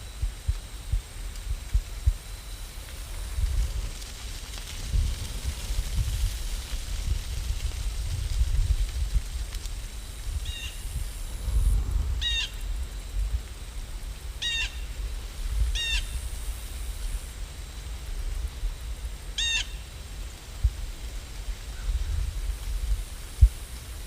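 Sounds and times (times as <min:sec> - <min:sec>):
steady low rumble: 0:00.0 - 0:19.4
bird calling: 0:12.2 - 0:12.6, 0:19.4 - 0:19.8.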